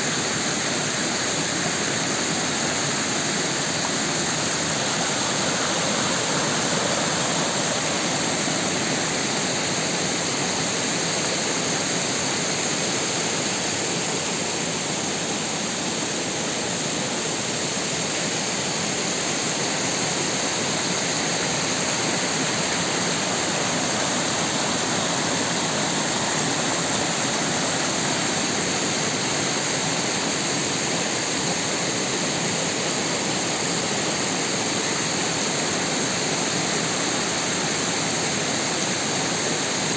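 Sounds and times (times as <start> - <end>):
creek rushing: 0.0 - 39.9.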